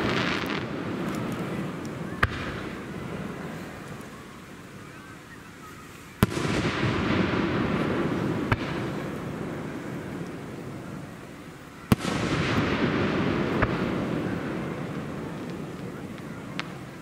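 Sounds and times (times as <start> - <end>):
rumble after firework bang: 6.2 - 9.3.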